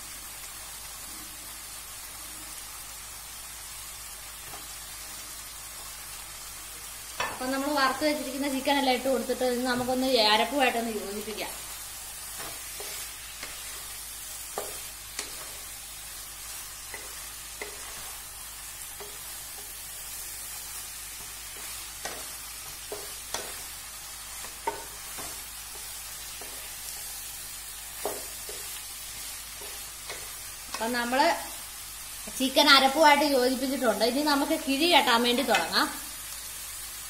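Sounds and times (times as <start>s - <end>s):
chicken sizzling in oil: 0.0s - 37.0s
spatula knocking and scraping pan: 12.3s - 15.8s, 16.8s - 18.2s, 21.1s - 23.7s, 24.3s - 27.0s, 28.0s - 31.0s, 35.4s - 35.8s.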